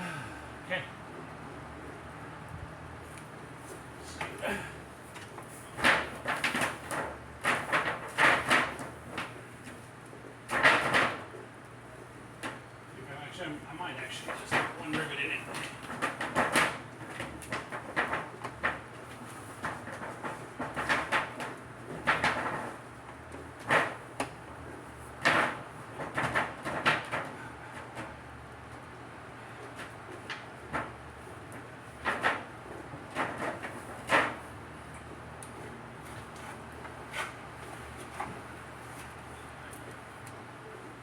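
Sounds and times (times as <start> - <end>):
aluminum sheet knocks and clunks: 5.7 - 9.8, 10.5 - 11.4, 14.2 - 24.4, 25.1 - 28.1, 29.8 - 34.6.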